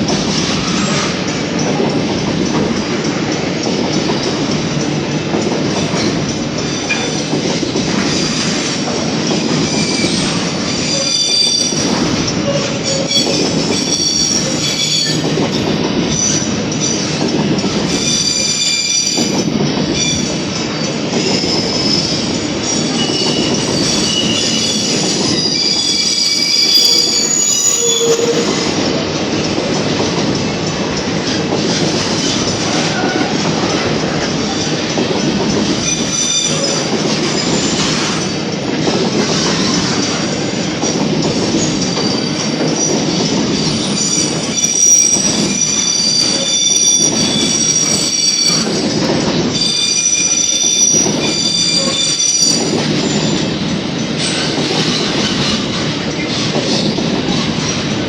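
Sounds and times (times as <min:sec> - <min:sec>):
train wheels rumbling and clattering: 0:00.0 - 0:58.0
high-pitched wheel squeal: 0:22.8 - 0:28.7, 0:44.0 - 0:48.7.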